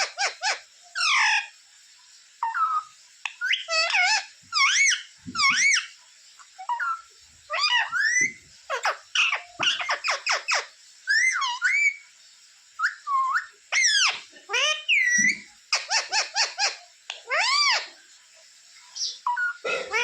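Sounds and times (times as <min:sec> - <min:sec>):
parrot whistled calls: 0:02.4 - 0:05.9, 0:06.6 - 0:12.0, 0:12.8 - 0:17.9.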